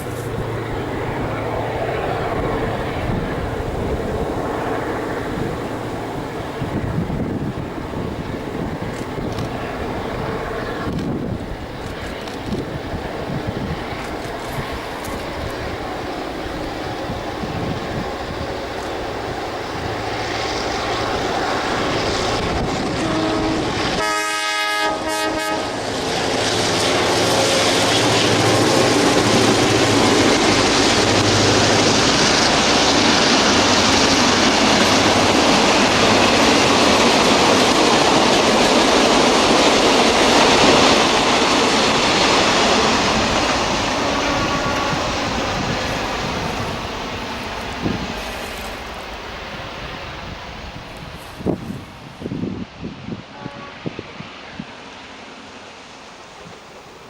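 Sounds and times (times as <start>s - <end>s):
locomotive engine noise: 0.0s - 57.0s
train horn: 22.0s - 28.8s, 42.2s - 46.9s, 53.1s - 54.8s.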